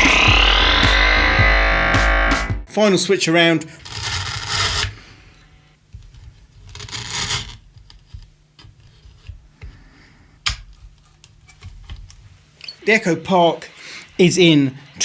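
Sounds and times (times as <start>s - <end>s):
steady low hum: 0.0s - 2.6s.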